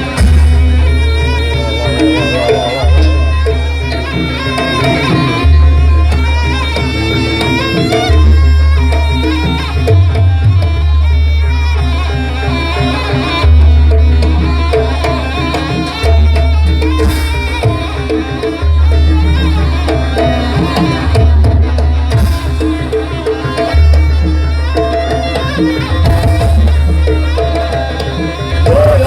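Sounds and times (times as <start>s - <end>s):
low booming tones: 0.0s - 9.1s
hand drums beating quickly: 0.0s - 11.6s, 12.2s - 29.0s
traditional ensemble music: 0.0s - 29.0s.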